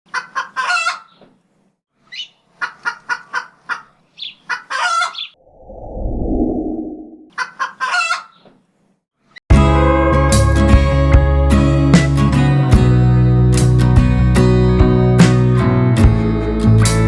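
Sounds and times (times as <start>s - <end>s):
chicken short calls: 0.1s - 1.3s, 2.1s - 5.4s, 7.3s - 8.6s.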